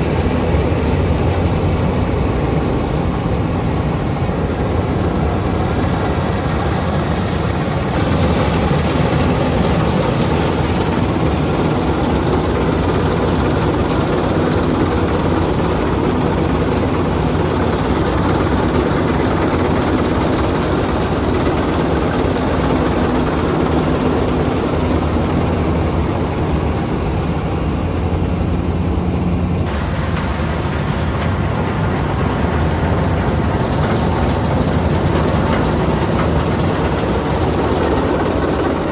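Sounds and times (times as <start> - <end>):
diesel engine running loudly: 0.0 - 38.9.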